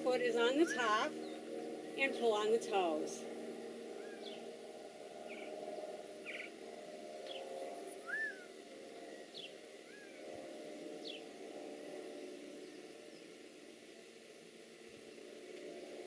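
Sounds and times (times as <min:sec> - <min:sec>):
rising and falling bird call: 0:00.5 - 0:01.4, 0:03.9 - 0:04.5, 0:05.2 - 0:05.6, 0:06.2 - 0:06.6, 0:07.2 - 0:10.3
bird chirping: 0:03.9 - 0:04.5, 0:05.2 - 0:05.6, 0:06.2 - 0:06.6, 0:07.2 - 0:10.3, 0:11.0 - 0:11.4.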